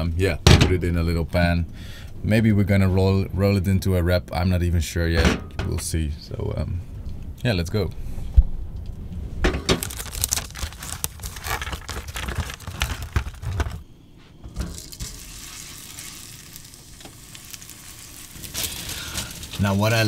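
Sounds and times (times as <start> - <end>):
plastic wrapper crinkling: 9.6 - 13.8, 14.6 - 20.0
burger sizzling in pan: 14.6 - 20.0.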